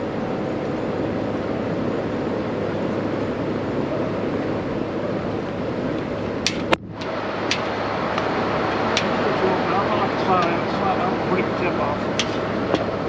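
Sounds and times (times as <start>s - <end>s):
fan whooshing with low hum: 0.0s - 13.0s
sharp clicks: 6.4s - 8.3s.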